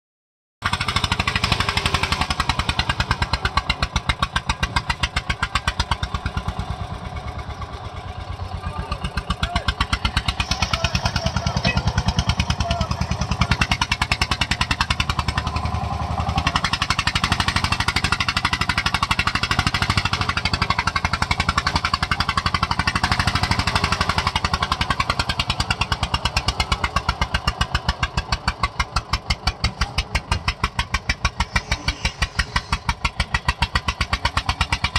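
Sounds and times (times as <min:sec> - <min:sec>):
tractor diesel engine under load: 0:00.6 - 0:34.9.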